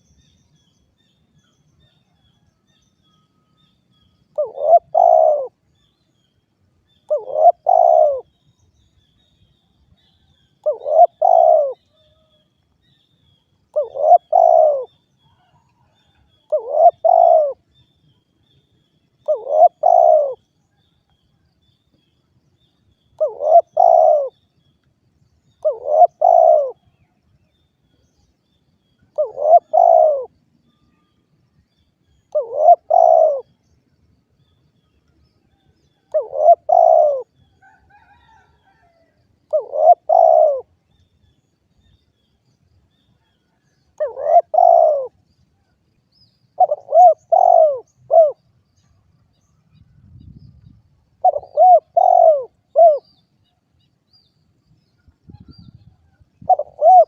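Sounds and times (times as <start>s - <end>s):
dove cooing: 4.3s - 5.6s, 7.1s - 8.3s, 10.6s - 12.3s, 13.8s - 17.7s, 19.2s - 20.4s, 23.2s - 24.3s, 25.6s - 26.9s, 29.1s - 30.3s, 32.3s - 33.6s, 36.0s - 40.7s, 44.0s - 45.2s, 46.6s - 48.4s, 51.2s - 53.1s, 55.3s - 57.0s.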